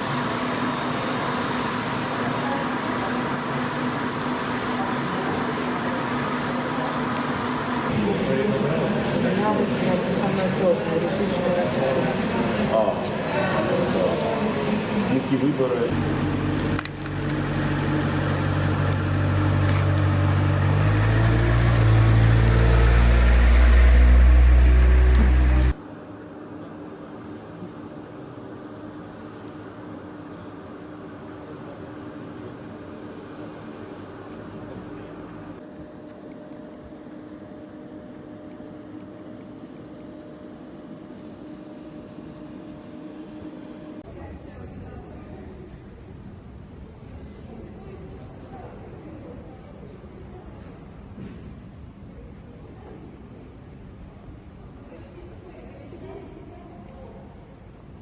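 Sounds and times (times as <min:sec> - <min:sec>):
engine running: 0:00.0 - 0:08.2, 0:15.8 - 0:25.8
airplane cabin droning hum: 0:00.0 - 0:44.0.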